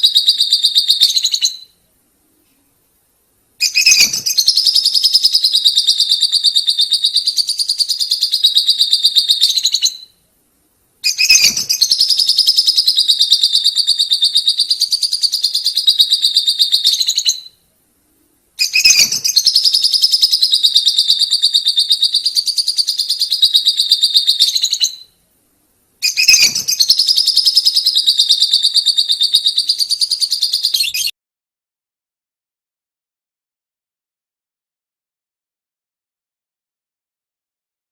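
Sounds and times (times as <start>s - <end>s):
lovebirds rattling trill: 3.6s - 10.0s, 11.0s - 17.2s, 26.0s - 31.1s.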